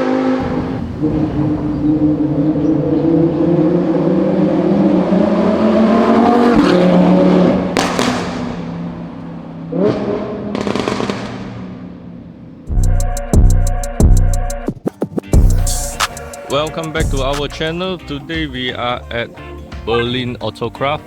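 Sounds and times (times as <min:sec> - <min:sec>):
sharp exhaust cracks: 0:00.4 - 0:04.5
sports car engine accelerating: 0:00.4 - 0:13.6.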